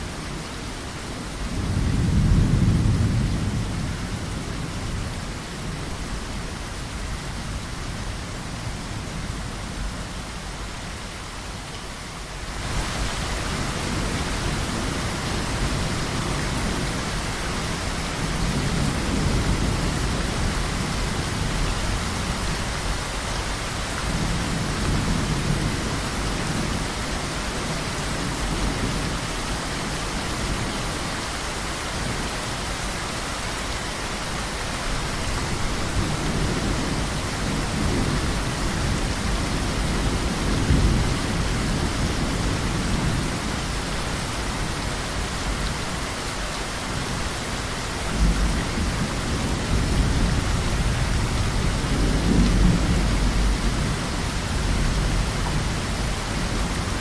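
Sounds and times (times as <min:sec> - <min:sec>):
heavy rain: 0:00.0 - 0:57.0
thunder rumbling: 0:01.5 - 0:06.0, 0:12.6 - 0:31.1, 0:35.0 - 0:45.3, 0:47.0 - 0:57.0.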